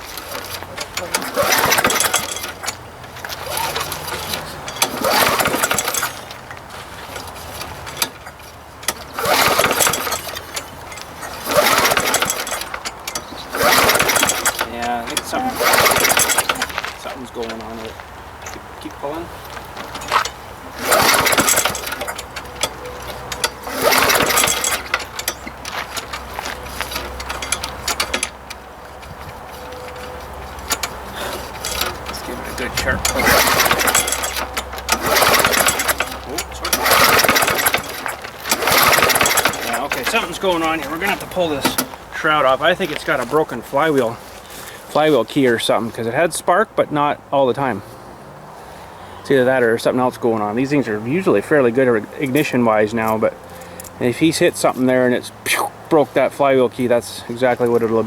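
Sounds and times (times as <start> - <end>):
starter rope pull: 0.0 - 45.8
lawn mower engine cranking: 0.0 - 58.0.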